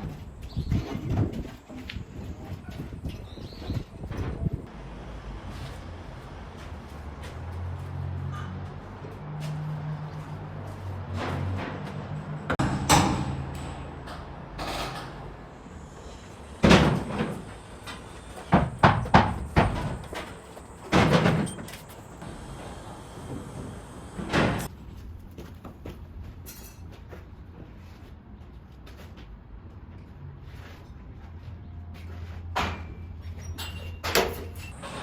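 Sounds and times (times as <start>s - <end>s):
hard knocks and thuds: 18.4s - 21.7s.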